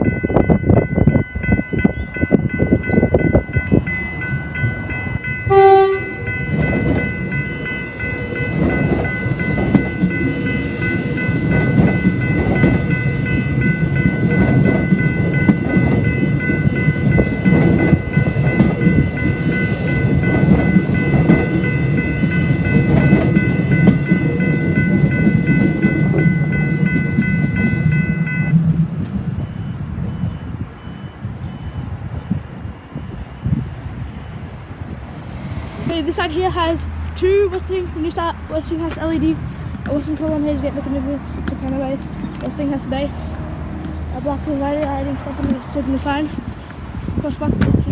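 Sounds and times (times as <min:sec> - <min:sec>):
level crossing warning bell: 0:00.0 - 0:43.4
train rumble and wheel clatter: 0:00.0 - 0:47.9
train horn blast: 0:05.5 - 0:06.3.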